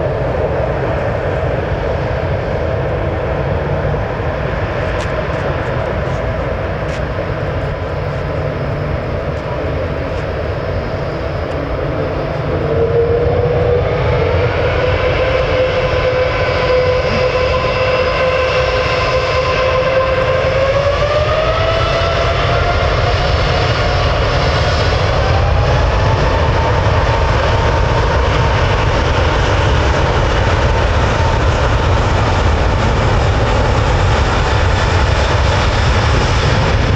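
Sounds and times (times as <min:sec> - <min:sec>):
jet engine whine: 0:00.0 - 0:36.9
jet engines rumbling: 0:00.0 - 0:36.9.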